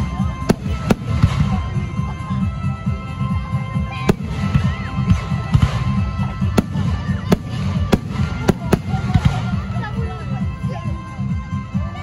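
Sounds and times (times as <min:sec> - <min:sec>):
music: 0:00.0 - 0:12.0
sharp fireworks cracks: 0:00.4 - 0:01.7, 0:04.1 - 0:09.8
fireworks launching and bursting: 0:00.4 - 0:01.9, 0:04.0 - 0:09.9.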